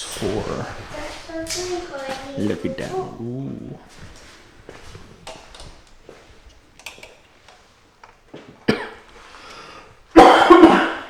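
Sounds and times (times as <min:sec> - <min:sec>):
person coughing: 0:08.7 - 0:09.0, 0:10.2 - 0:11.0.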